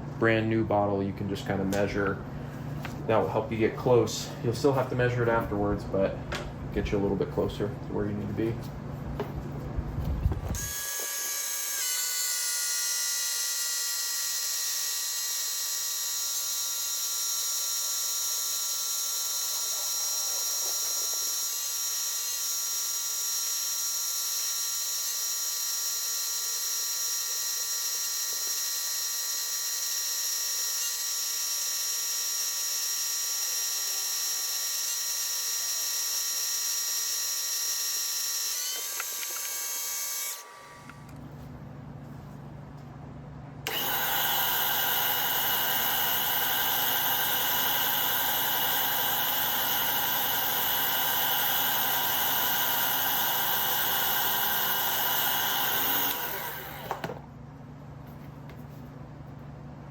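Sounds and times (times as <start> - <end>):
electric pump motor whine: 10.0 - 41.1, 43.6 - 57.2.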